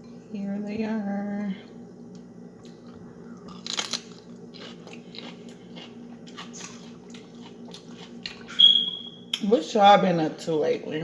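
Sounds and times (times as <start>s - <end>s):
faint steady hum: 0.0s - 11.0s
person chewing crunchy food: 2.0s - 8.6s.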